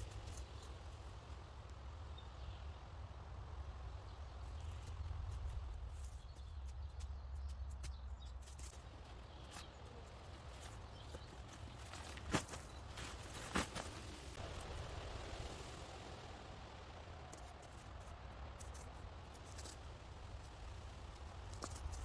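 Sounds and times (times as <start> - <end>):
steady low rumble: 0.0 - 22.0
small clicks and cracks: 17.2 - 22.0.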